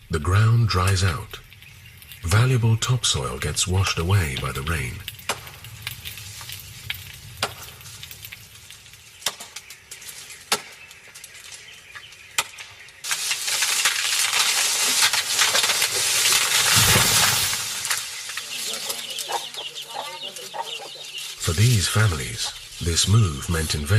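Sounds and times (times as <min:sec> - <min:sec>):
heavy rain hissing: 0:00.0 - 0:09.2, 0:13.0 - 0:23.9.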